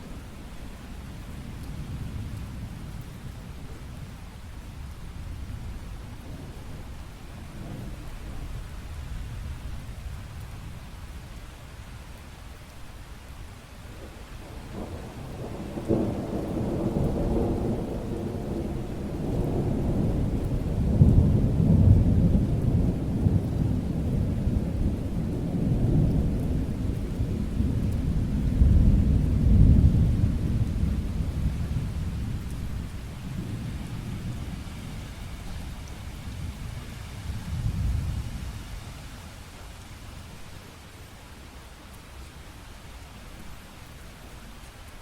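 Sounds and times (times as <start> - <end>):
steady rain hiss: 0.0 - 45.0
rolling thunder: 14.4 - 38.6.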